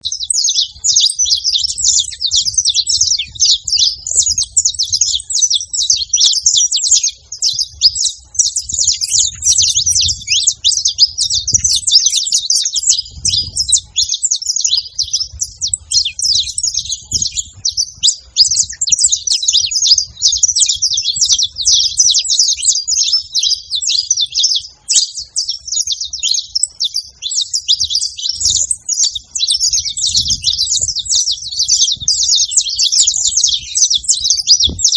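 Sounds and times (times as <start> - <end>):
finch singing: 0.0 - 34.9.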